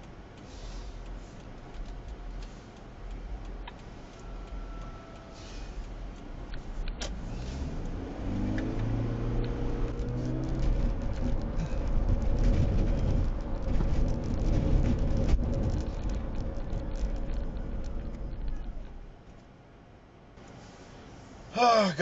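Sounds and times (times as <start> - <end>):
road noise: 0.0 - 22.0
car engine accelerating: 5.6 - 19.2.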